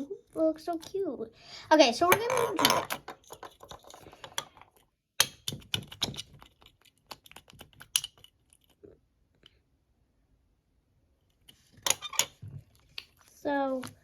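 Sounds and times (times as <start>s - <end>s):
small objects clicking on table: 2.1s - 8.8s.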